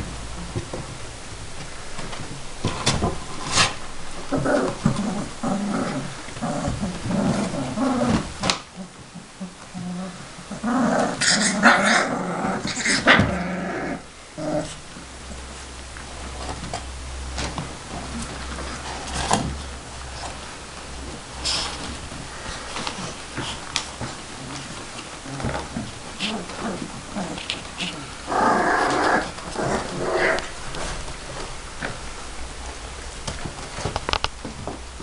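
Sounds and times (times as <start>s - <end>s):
puppies growling and whimpering: 3.4s - 14.8s, 21.4s - 32.0s.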